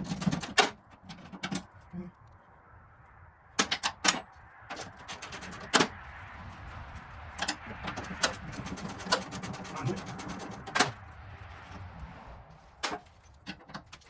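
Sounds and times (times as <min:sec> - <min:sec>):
hand tools clicking and knocking: 0:00.0 - 0:01.8, 0:03.6 - 0:06.0, 0:07.4 - 0:11.0, 0:12.8 - 0:14.0.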